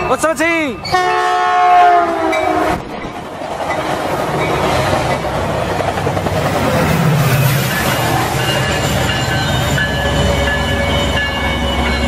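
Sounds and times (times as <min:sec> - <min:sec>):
train cars rushing rumble: 0:00.0 - 0:12.0
train horn chord: 0:01.0 - 0:02.8.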